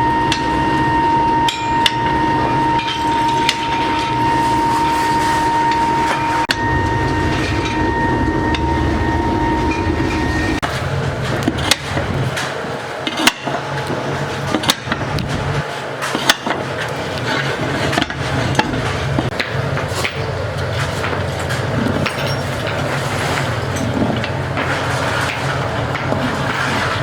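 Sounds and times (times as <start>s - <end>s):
hammer blows: 0.0s - 12.6s
workshop machinery whining: 0.0s - 27.0s.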